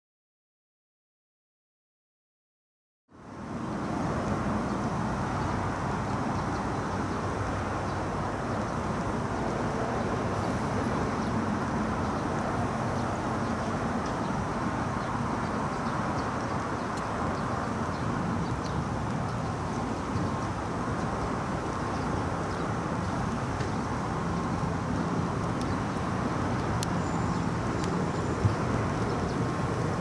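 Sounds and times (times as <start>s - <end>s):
train creeping slowly: 3.5s - 17.4s, 18.4s - 30.0s.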